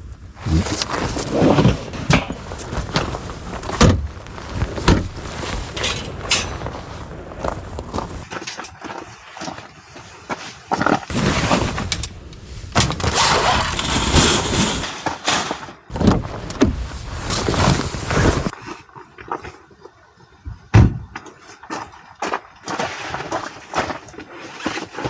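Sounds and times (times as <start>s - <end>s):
rustling and scraping: 0.1s - 8.4s, 10.7s - 18.6s.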